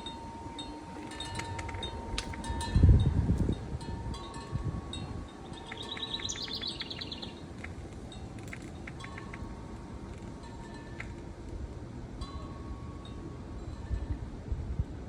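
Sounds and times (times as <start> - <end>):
wind chimes ringing: 0.0 - 7.5, 8.1 - 11.2, 12.2 - 14.4
bird chirping: 5.4 - 7.4.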